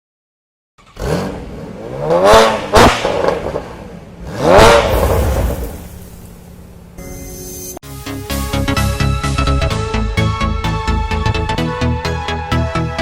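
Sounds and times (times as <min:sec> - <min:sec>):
sports car engine revving: 0:00.8 - 0:07.0
sharp exhaust crack: 0:04.3 - 0:07.0.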